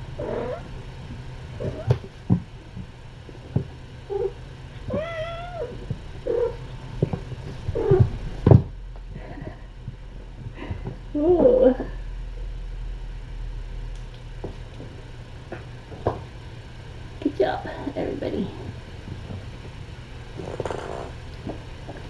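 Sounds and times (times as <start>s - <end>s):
kittens mewing: 0.1s - 0.9s, 1.5s - 2.1s, 4.0s - 12.0s
cat meowing: 0.2s - 0.8s, 4.1s - 6.7s.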